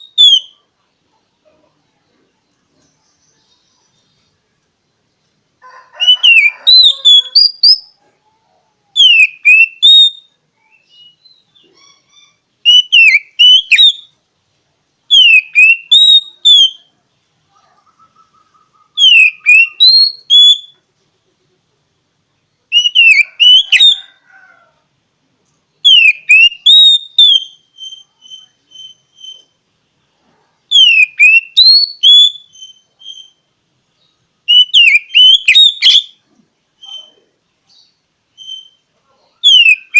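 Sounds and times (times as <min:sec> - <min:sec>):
bird singing whistled phrases: 0:00.0 - 0:00.6, 0:06.0 - 0:08.0, 0:08.9 - 0:14.1, 0:15.1 - 0:16.9, 0:17.9 - 0:20.8, 0:22.7 - 0:24.1, 0:25.8 - 0:29.5, 0:30.7 - 0:33.4, 0:34.5 - 0:36.2, 0:39.4 - 0:39.9
soft bird chattering: 0:17.5 - 0:20.8.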